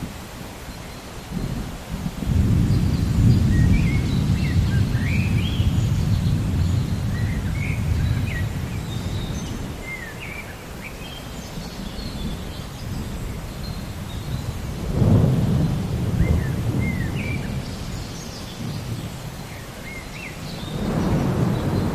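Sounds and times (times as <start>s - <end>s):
rain hiss: 0.0s - 21.9s
thunder rumbling: 1.3s - 9.8s, 14.3s - 18.0s, 20.7s - 21.9s
birds chirping: 2.2s - 21.9s.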